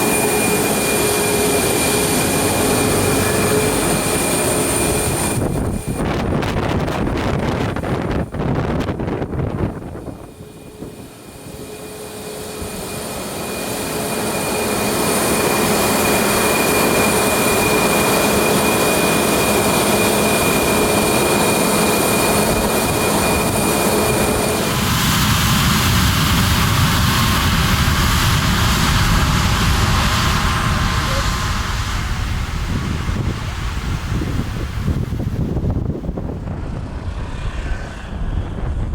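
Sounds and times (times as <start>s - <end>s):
jet engines roaring and whining: 0.0s - 38.9s
low rumble: 24.7s - 38.9s.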